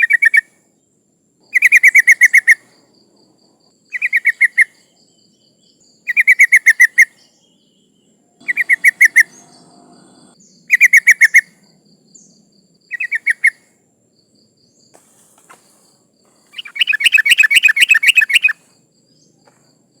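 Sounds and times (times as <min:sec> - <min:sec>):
bulbul calling: 0:03.9 - 0:04.8, 0:06.1 - 0:07.3, 0:08.4 - 0:11.6, 0:12.9 - 0:13.6, 0:16.4 - 0:18.7.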